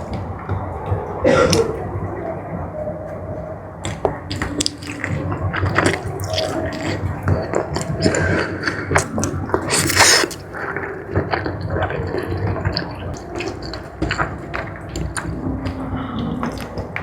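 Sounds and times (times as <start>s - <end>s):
mouth clicks: 3.8s - 17.0s
wet chewing and smacking: 3.8s - 17.0s.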